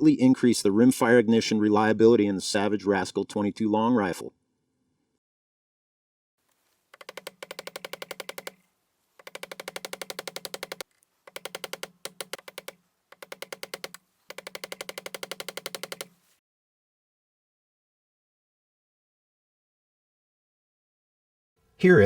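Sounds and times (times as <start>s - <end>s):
rapid clicking: 6.9s - 8.6s, 9.2s - 16.2s.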